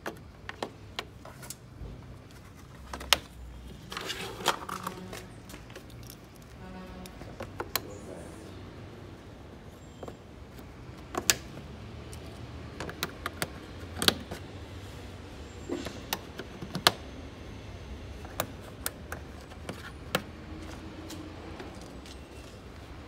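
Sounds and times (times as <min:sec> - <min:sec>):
hand tools and metal parts clinking: 0:03.7 - 0:06.6.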